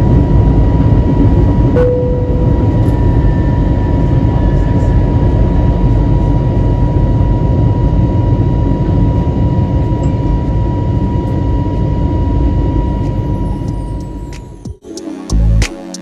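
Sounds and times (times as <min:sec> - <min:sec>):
airplane cabin rumble: 0:00.0 - 0:14.7
constant high tone: 0:01.8 - 0:08.8, 0:09.8 - 0:15.4.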